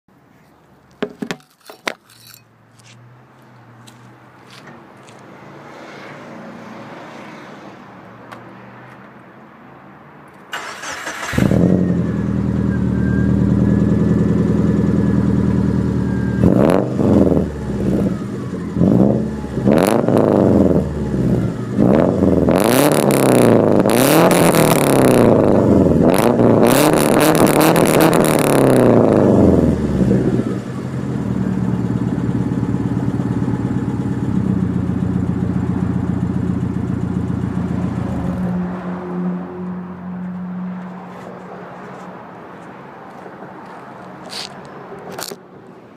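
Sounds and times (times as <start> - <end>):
car engine starting: 10.5 - 39.0
car engine idling: 10.6 - 16.4, 29.3 - 38.5
car engine revving: 10.6 - 39.9.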